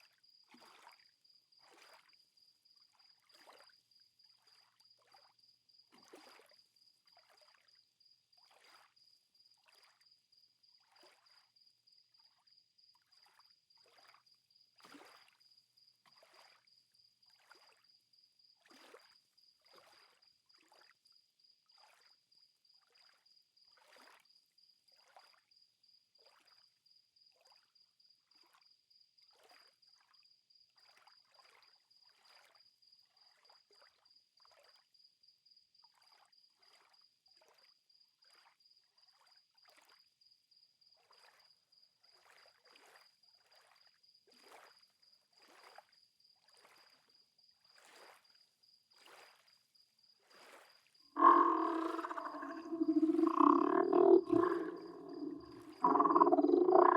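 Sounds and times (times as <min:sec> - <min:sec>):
soft splashes: 0:51.2 - 0:56.9
water lapping: 0:51.2 - 0:56.9.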